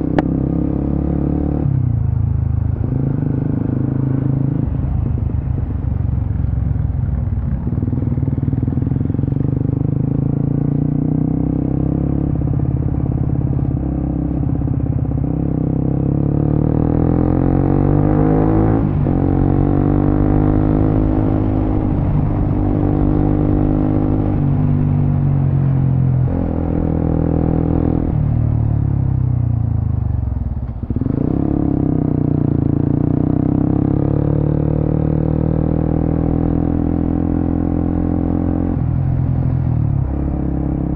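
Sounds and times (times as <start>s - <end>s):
motorcycle engine revving: 7.0s - 29.1s, 30.7s - 40.9s.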